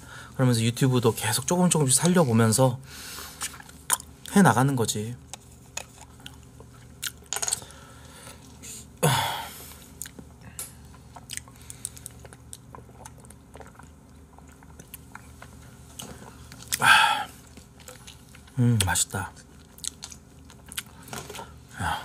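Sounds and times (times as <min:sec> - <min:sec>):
chewing and mouth noises: 0:05.7 - 0:07.3, 0:09.9 - 0:21.1.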